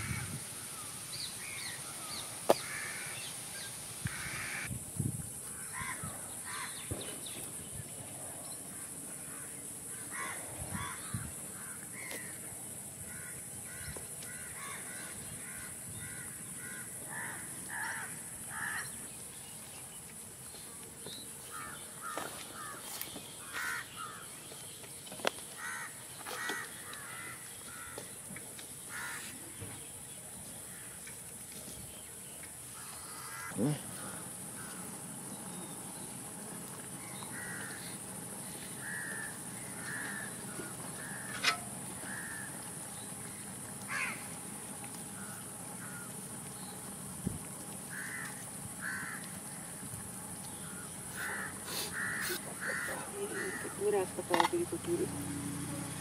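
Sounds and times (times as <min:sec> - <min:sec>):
birds calling: 0:00.0 - 0:04.7, 0:05.4 - 0:56.0
steady high hiss: 0:00.0 - 0:24.5.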